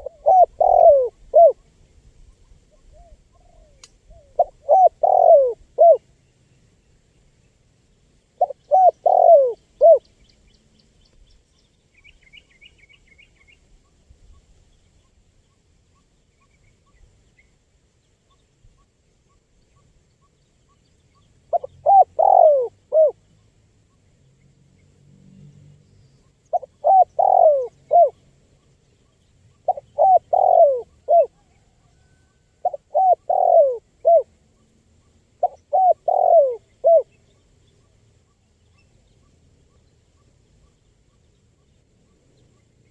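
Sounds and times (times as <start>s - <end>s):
small bird twittering: 0.0s - 1.6s, 2.3s - 6.0s, 8.4s - 10.6s
dove cooing: 0.0s - 1.7s, 2.8s - 6.0s, 8.4s - 10.0s, 21.5s - 23.2s, 26.5s - 28.2s, 29.6s - 34.3s, 35.4s - 37.2s.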